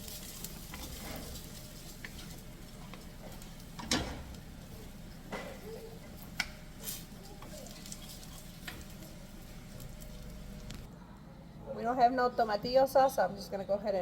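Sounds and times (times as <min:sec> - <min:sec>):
cookware and utensils clinking: 0:00.0 - 0:10.1
low steady hum: 0:00.0 - 0:14.0.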